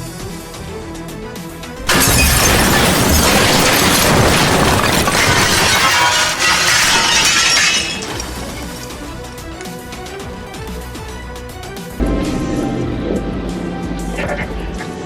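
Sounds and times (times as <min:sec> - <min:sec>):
collision with glass shattering: 0:01.8 - 0:09.4.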